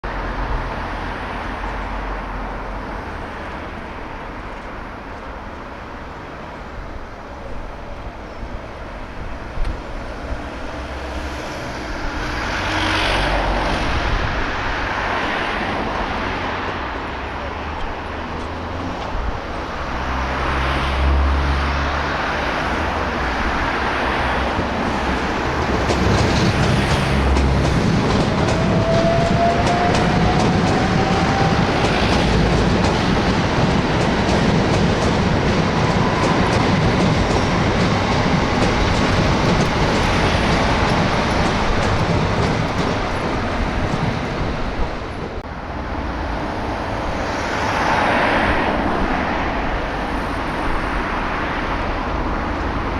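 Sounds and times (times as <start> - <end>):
train wheels clacking over rail joints: 24.5 - 44.6.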